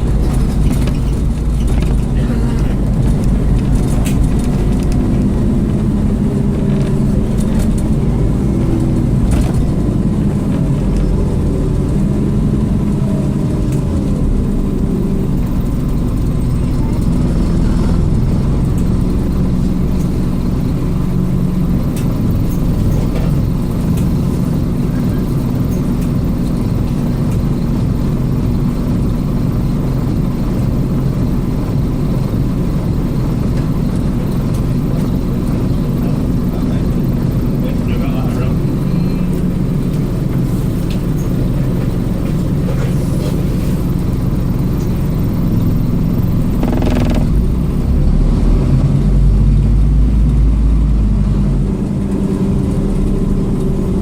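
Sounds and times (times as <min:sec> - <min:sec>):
bus diesel engine running: 0:00.0 - 0:54.0
road noise: 0:00.0 - 0:54.0.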